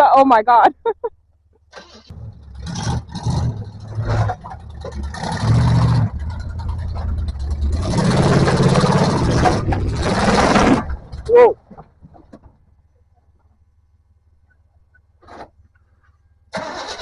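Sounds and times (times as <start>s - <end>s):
off-road engine revving: 1.7s - 11.6s
broad rushing noise: 7.4s - 11.3s.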